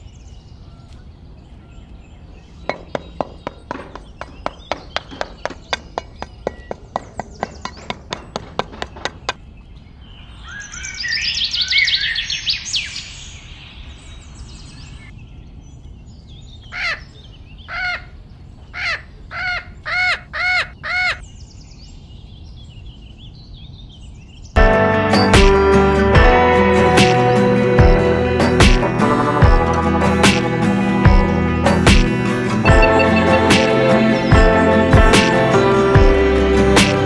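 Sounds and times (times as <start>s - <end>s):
birds twittering chirps: 0.0s - 24.6s, 29.1s - 36.4s
crow cawing: 16.8s - 17.0s, 17.7s - 18.1s, 18.8s - 21.2s.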